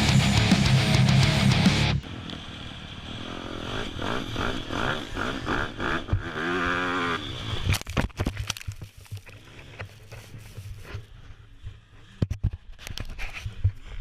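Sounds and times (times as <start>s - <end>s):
dirt bike engine revving: 0.0s - 7.7s.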